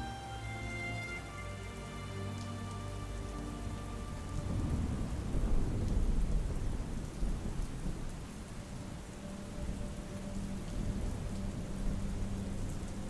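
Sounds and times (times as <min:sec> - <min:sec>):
soft ambient music notes: 0:00.0 - 0:13.0
steady rain: 0:00.0 - 0:13.0
low rumble of thunder: 0:03.7 - 0:13.0.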